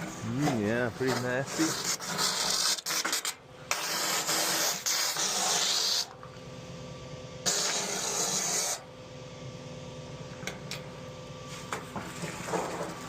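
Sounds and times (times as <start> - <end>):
vacuum pump humming: 0.0 - 2.2.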